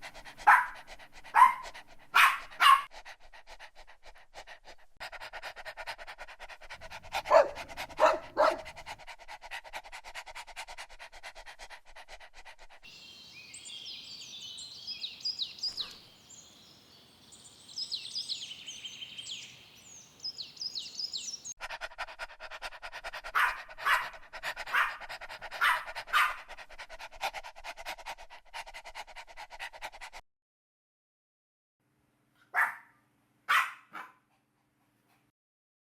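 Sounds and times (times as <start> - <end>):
dogs barking: 0.0 - 2.9, 5.1 - 10.9, 22.4 - 28.7, 32.5 - 32.9, 33.5 - 34.2.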